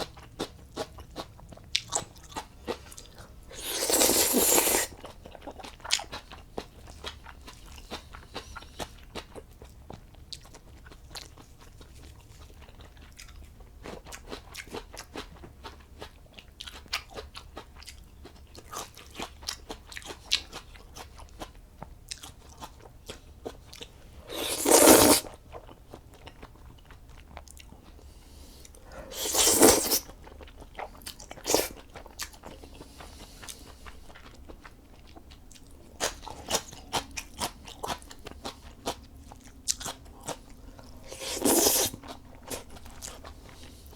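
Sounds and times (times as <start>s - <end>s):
person chewing noodles: 0.0s - 43.9s.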